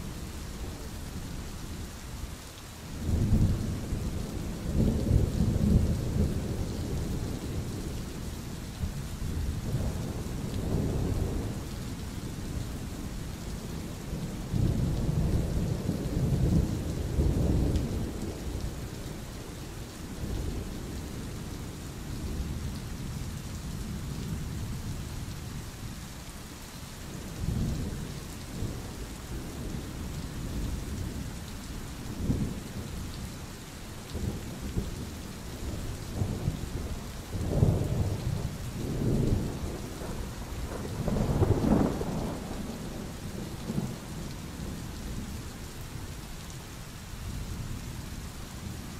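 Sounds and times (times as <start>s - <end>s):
steady rain: 0.0s - 48.9s
rolling thunder: 34.1s - 45.3s.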